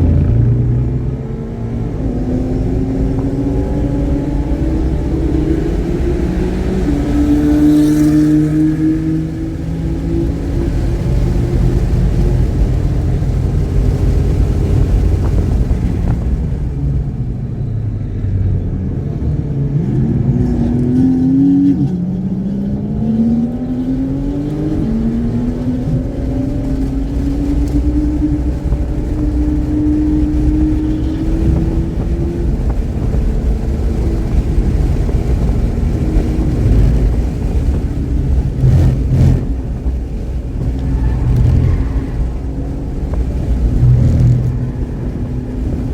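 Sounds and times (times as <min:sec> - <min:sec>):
race car engine revving: 0:00.0 - 0:16.8, 0:18.6 - 0:45.9.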